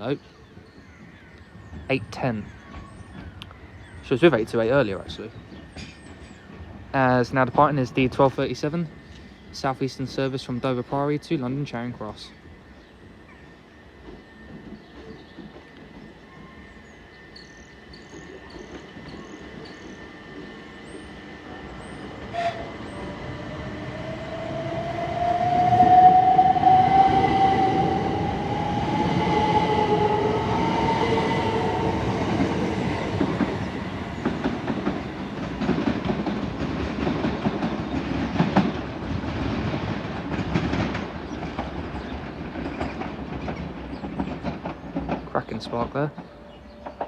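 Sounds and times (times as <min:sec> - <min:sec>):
wheels clattering over rail joints: 0:33.0 - 0:47.0.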